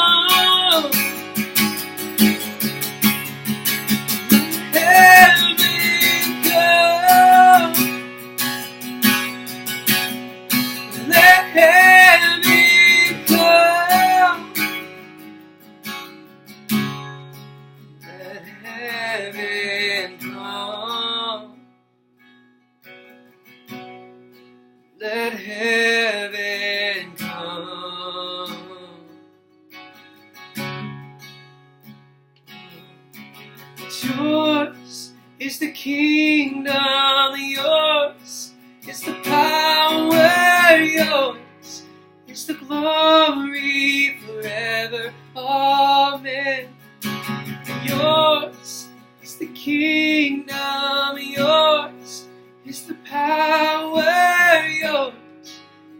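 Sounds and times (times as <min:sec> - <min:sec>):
person singing: 0:00.0 - 0:01.4, 0:04.3 - 0:08.0, 0:10.9 - 0:14.6, 0:18.0 - 0:21.6, 0:33.8 - 0:46.7, 0:47.6 - 0:55.6
acoustic guitar strumming: 0:00.0 - 0:55.9.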